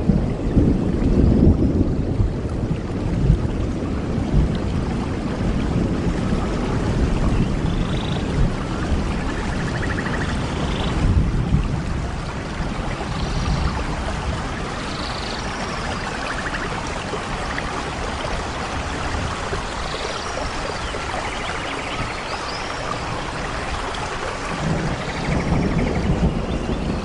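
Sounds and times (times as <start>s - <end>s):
rain hissing: 0.0s - 27.0s
rushing water: 0.0s - 27.0s
bird chirps and trills: 9.2s - 11.0s, 24.7s - 27.0s.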